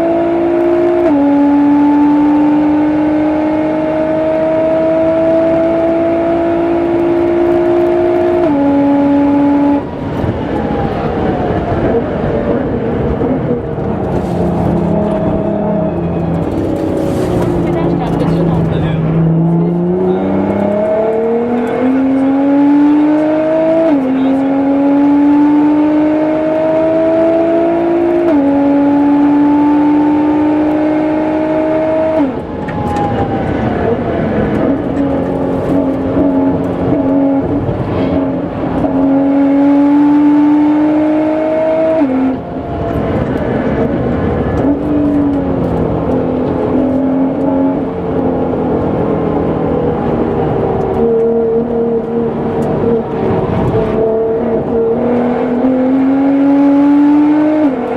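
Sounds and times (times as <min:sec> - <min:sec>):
car engine revving hard: 0:00.0 - 0:10.4, 0:11.3 - 0:32.6, 0:33.2 - 0:57.9.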